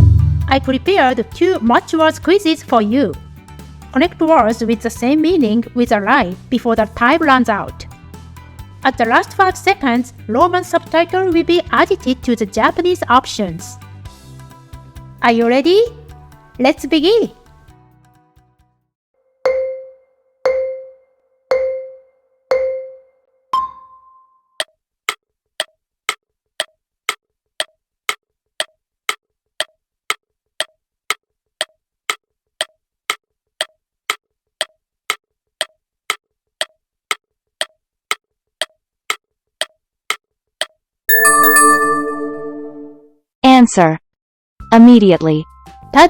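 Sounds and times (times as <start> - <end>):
higher beep: 41.1 - 43.1.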